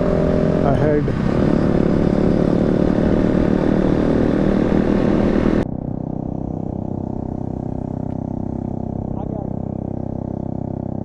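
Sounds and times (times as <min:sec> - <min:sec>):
wind rushing: 0:00.0 - 0:07.8
motorcycle engine running: 0:00.0 - 0:11.0.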